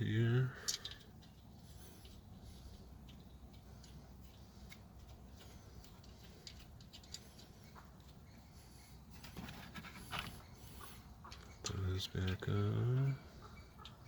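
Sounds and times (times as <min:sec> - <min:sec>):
metal parts clicking: 0:00.6 - 0:01.0.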